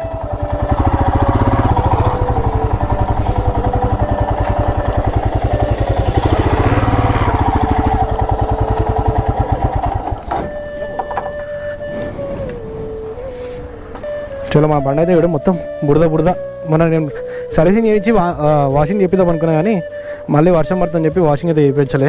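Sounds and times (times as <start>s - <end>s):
motorcycle engine running: 0.0s - 11.8s, 12.4s - 14.4s.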